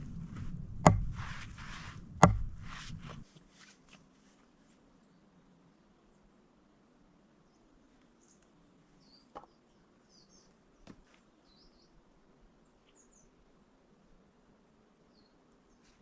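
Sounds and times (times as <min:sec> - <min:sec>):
soft knocks: 0:00.0 - 0:03.2.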